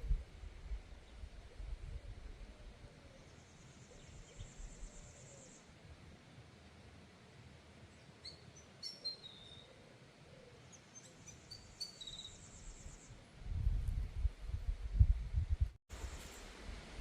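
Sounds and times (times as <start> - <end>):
bird chirps: 8.2 - 9.8, 10.7 - 13.2.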